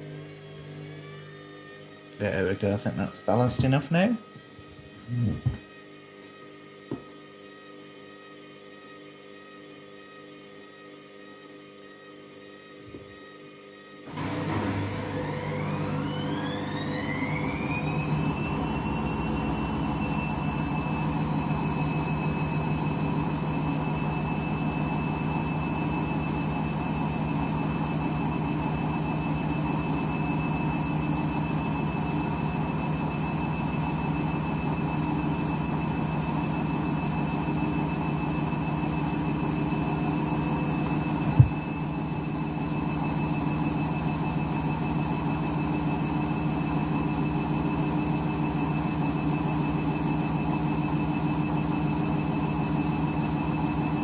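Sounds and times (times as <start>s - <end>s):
washing machine motor whine: 0.0s - 54.0s
drum thump: 41.3s - 41.6s.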